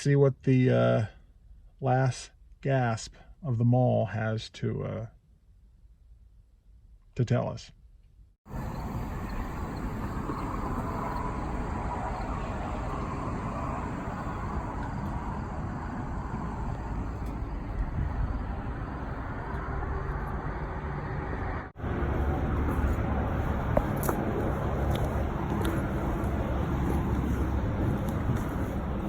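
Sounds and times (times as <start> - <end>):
car road and engine noise: 8.5 - 29.0
low rumble: 8.7 - 29.0.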